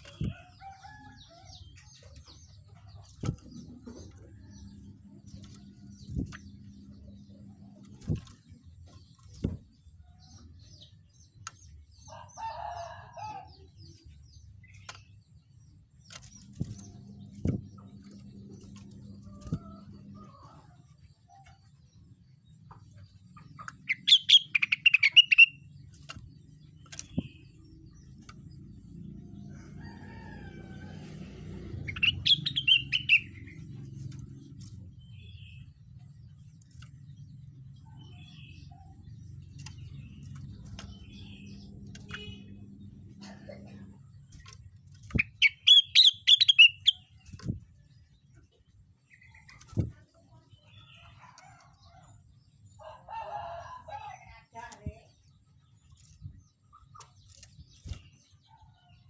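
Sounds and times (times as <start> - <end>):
soft chirps and clicks: 0.0 - 12.4, 22.6 - 30.3, 31.7 - 52.2.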